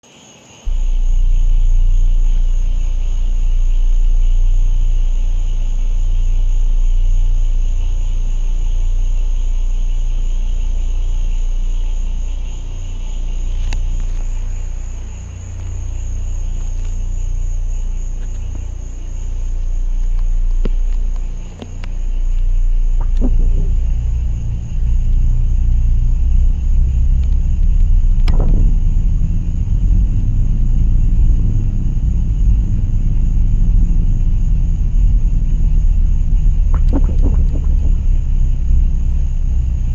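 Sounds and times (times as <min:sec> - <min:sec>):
night insects chorus: 0:00.0 - 0:39.9
deep steady rumble: 0:00.7 - 0:39.9
faint clicks: 0:11.8 - 0:29.0, 0:36.4 - 0:39.9.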